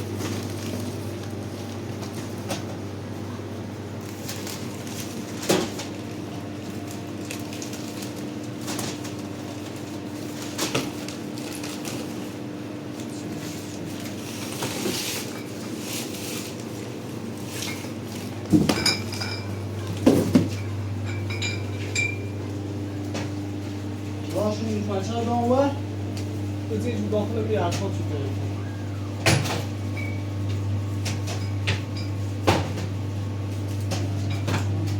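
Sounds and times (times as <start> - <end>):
dishes and utensils clinking: 18.5 - 19.6, 20.4 - 22.3.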